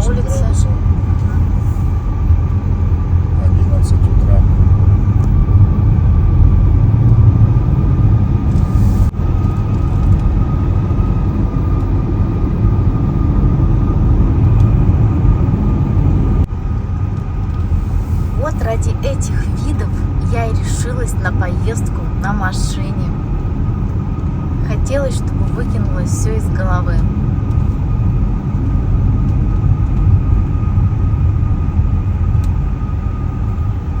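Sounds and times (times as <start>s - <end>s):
car engine and road rumble: 0.0s - 34.0s
faint steady whine: 0.0s - 34.0s.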